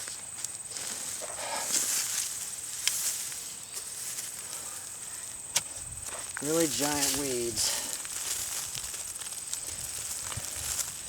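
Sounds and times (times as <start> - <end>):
soil and plants rustling: 0.0 - 11.0.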